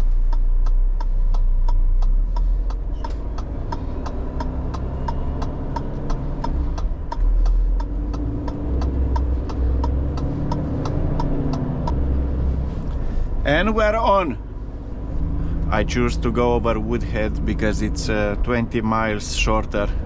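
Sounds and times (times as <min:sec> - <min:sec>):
indicator relay ticking: 0:00.0 - 0:12.2
diesel engine rumble: 0:00.0 - 0:20.0.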